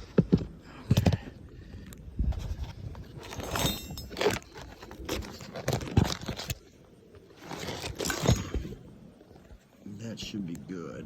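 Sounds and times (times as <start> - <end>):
phone scraping and rustling: 2.3 - 9.6.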